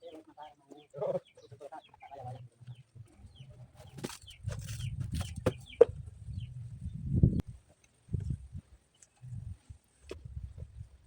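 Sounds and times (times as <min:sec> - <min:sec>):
knocks and scrapes: 0:03.7 - 0:06.2.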